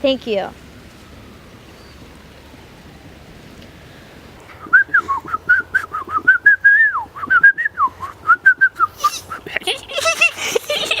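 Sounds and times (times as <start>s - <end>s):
bird-like whistling: 4.6s - 9.4s.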